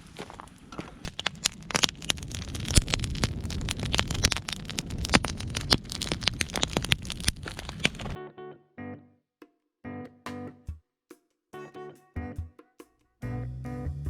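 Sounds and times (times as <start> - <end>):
bonfire crackling and popping: 0.0 - 8.2
guitar music: 8.2 - 9.2, 9.8 - 10.7, 11.6 - 14.0.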